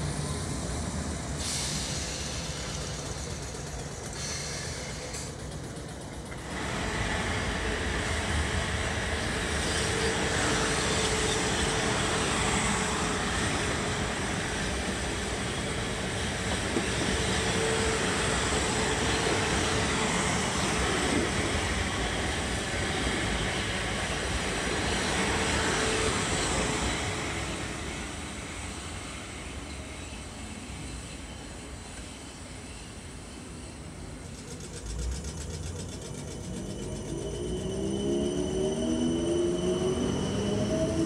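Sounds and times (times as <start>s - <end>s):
train wheels rushing on rail: 0.0s - 41.0s.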